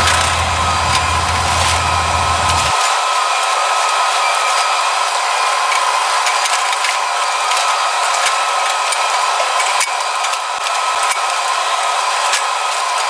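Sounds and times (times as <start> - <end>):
machine whine: 0.0 - 2.8.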